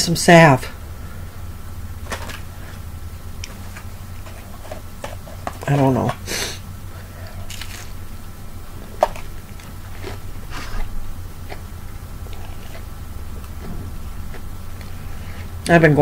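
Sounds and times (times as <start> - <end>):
crunchy biting and chewing: 7.0 - 15.6.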